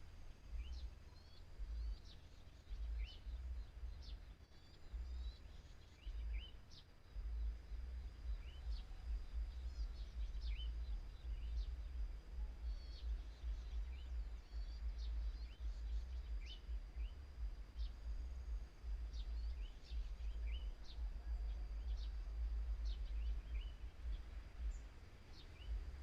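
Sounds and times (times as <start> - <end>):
small birds chirping: 0.0 - 26.0
wind buffeting microphone: 7.2 - 26.0.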